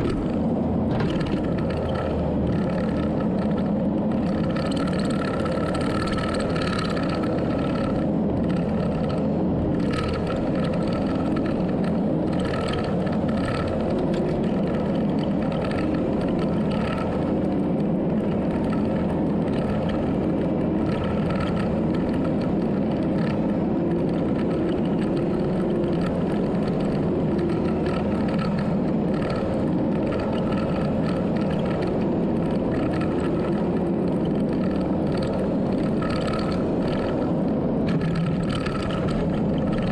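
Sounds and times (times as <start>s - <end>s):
diesel engine running under load: 0.0s - 39.9s
high engine whine: 0.0s - 39.9s.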